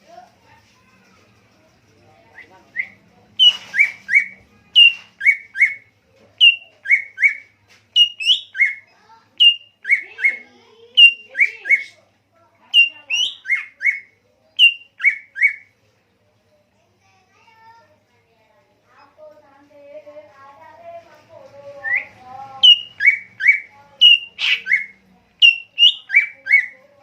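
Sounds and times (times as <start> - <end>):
songbird whistling: 2.4 - 12.0, 12.8 - 15.7, 21.8 - 26.8.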